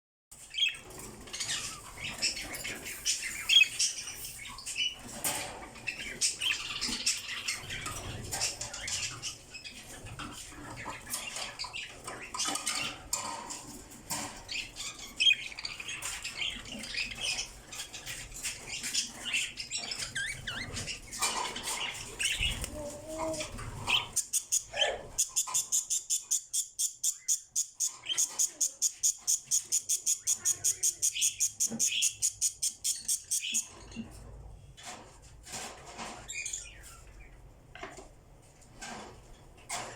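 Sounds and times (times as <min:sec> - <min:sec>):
lovebirds chattering and squawking: 0:00.3 - 0:34.4, 0:35.9 - 0:37.4.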